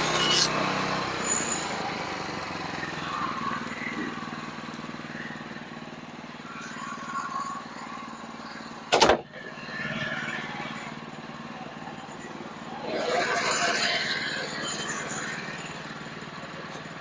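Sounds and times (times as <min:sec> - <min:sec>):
sawmill engine running: 0:08.1 - 0:17.0.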